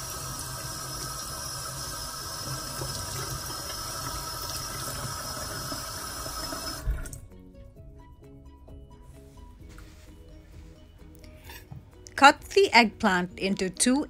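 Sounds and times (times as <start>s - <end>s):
tap water splashing in sink: 0.0s - 7.2s.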